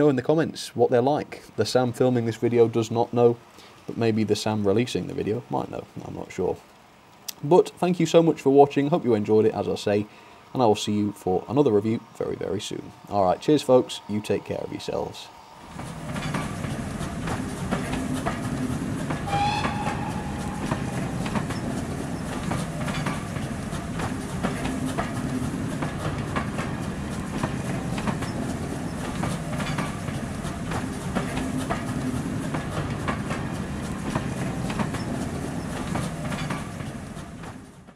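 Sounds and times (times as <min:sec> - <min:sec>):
train low rumble: 0:00.0 - 0:37.9
wheels clickety-clack over joints: 0:15.7 - 0:37.9
short high squeal: 0:19.2 - 0:22.4.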